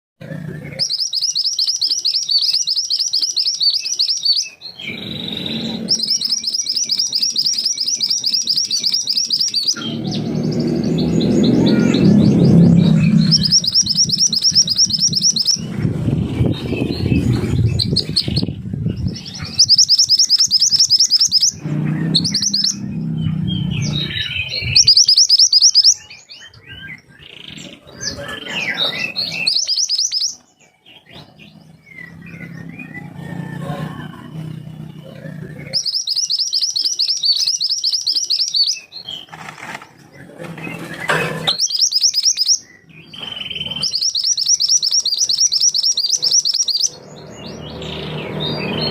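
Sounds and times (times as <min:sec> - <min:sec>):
songbird trilling: 0:00.4 - 0:39.3, 0:40.7 - 0:48.9
low rumble: 0:09.8 - 0:19.7, 0:21.5 - 0:24.9.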